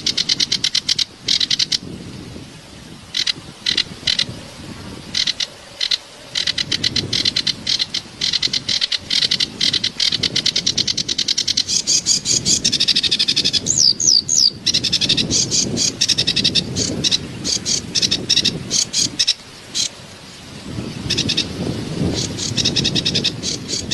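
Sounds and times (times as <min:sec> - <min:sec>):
songbird chattering: 0:05.1 - 0:19.9.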